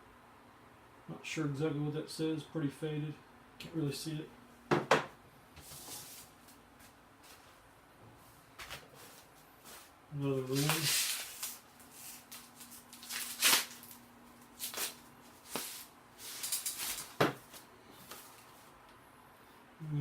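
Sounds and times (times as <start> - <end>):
faint steady hum: 0.0 - 20.0
rustling handling noises: 5.6 - 18.9.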